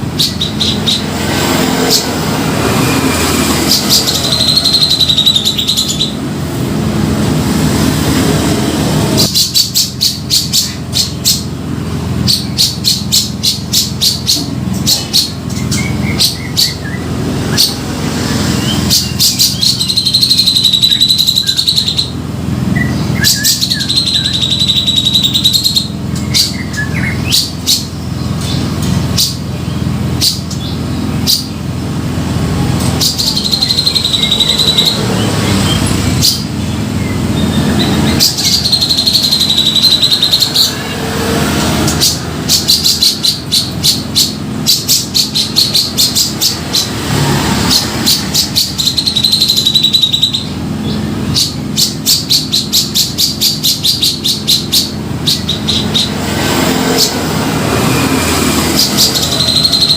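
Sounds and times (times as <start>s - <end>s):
bird calling whistles and chatter: 2.7s - 6.2s, 12.2s - 22.2s, 22.8s - 31.6s, 33.0s - 41.0s, 47.7s - 56.2s, 56.9s - 59.9s.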